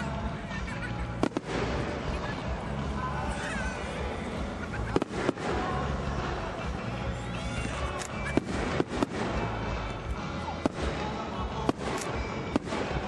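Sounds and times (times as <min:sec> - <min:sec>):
music playing: 0:00.0 - 0:13.0
dense rumble of fireworks: 0:01.1 - 0:07.2, 0:08.2 - 0:13.0
fireworks bangs: 0:01.1 - 0:13.0.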